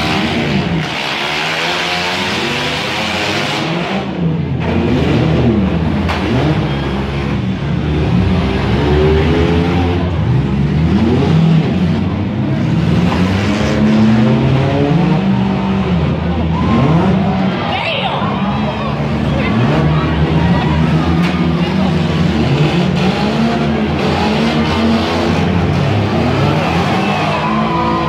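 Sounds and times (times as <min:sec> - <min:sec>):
car engines revving: 0:00.0 - 0:28.0.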